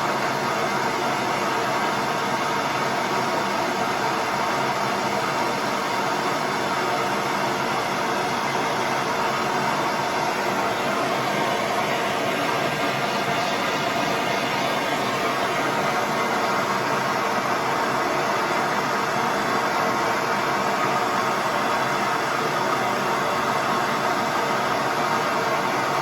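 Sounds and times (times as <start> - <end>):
gas torch flame hissing: 3.6 - 22.7.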